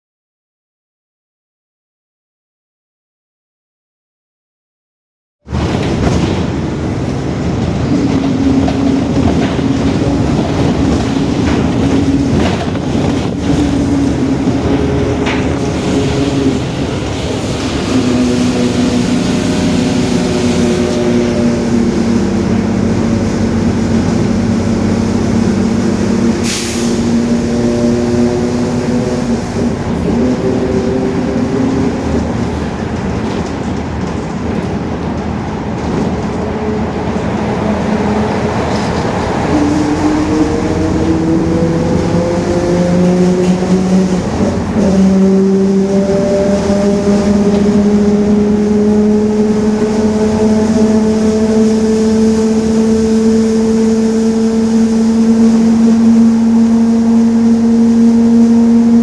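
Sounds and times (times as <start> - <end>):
engine and road noise: 5.4 - 59.0
bus differential whining: 5.5 - 59.0
short hiss of air: 26.4 - 27.1.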